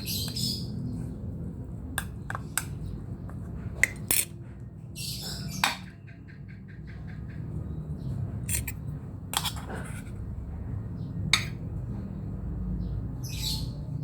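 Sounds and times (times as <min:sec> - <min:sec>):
kitchenware clinking and knocking: 0:08.5 - 0:08.8.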